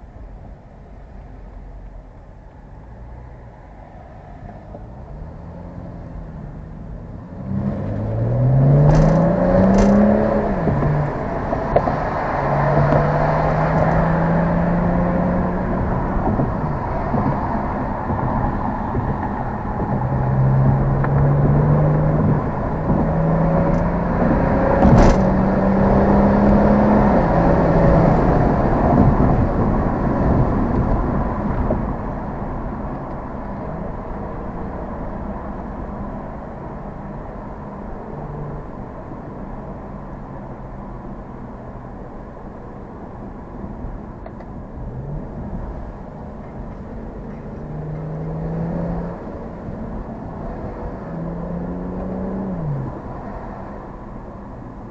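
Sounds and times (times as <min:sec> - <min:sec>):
road noise: 0:00.0 - 0:54.9
car engine revving: 0:05.0 - 0:35.4, 0:44.7 - 0:54.9.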